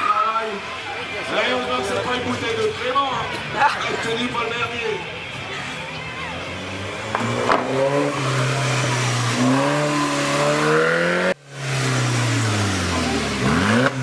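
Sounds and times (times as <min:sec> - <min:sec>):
car engine revving: 0:05.9 - 0:14.0.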